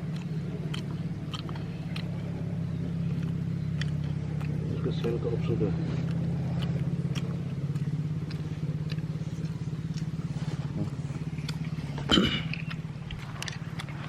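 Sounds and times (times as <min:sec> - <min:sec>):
engine pulsing hum: 0:00.0 - 0:14.0.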